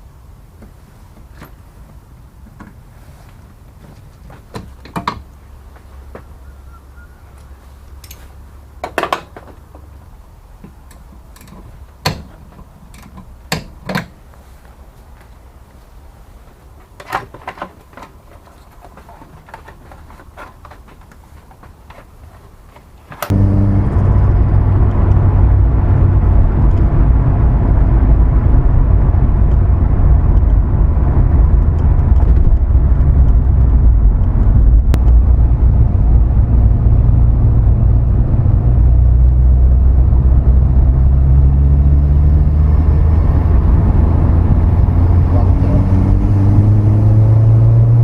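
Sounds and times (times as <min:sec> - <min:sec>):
car engine running: 0:23.3 - 0:48.0.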